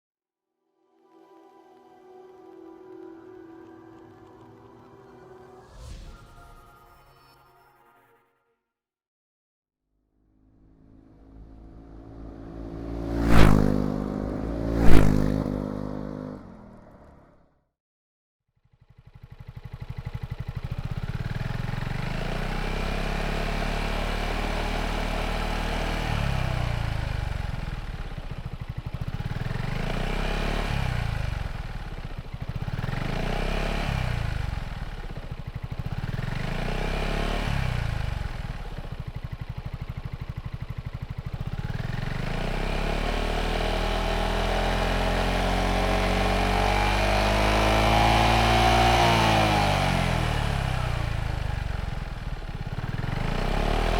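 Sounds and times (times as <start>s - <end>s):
scooter engine idling and revving: 10.3s - 17.4s, 18.6s - 53.9s.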